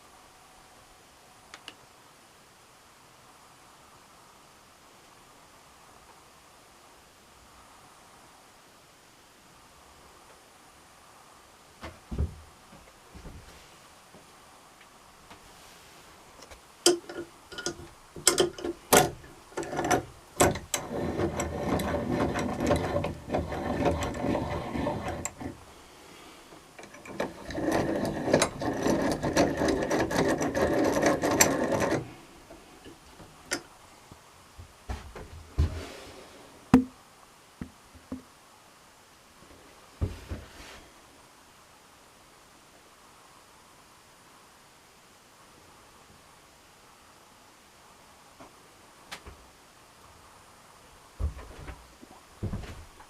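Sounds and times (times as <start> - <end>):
small ratcheting mechanism whirring: 16.9 - 25.6, 26.8 - 32.1.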